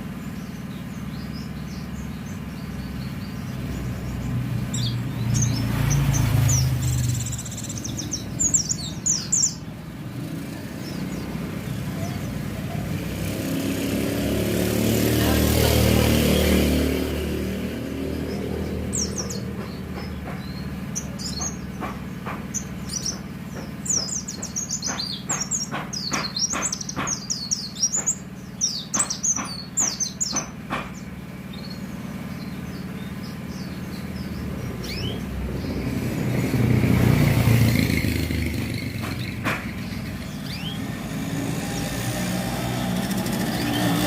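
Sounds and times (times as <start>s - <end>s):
bird chirping high and quick: 0.0s - 9.8s, 18.0s - 44.0s
vehicle passing close by: 0.0s - 24.7s, 30.2s - 44.0s
low traffic hum: 0.0s - 44.0s.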